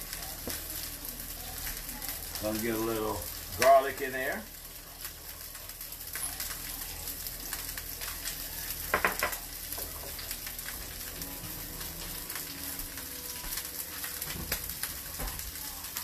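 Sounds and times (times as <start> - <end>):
fish sizzling in a pan: 0.0 - 16.0
dish knocking on counter: 8.9 - 9.9.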